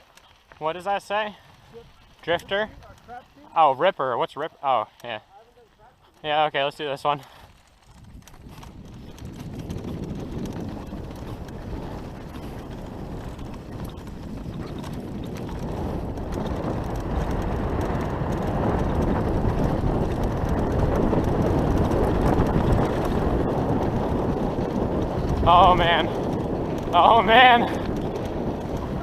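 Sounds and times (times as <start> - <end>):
bike tyres rumbling on dirt trail: 0.0 - 29.0
wind rushing over microphone: 7.4 - 29.0.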